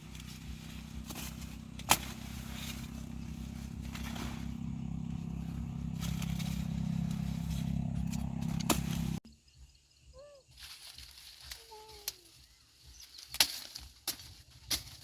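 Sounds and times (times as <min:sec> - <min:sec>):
engine running steadily: 0:00.0 - 0:09.2.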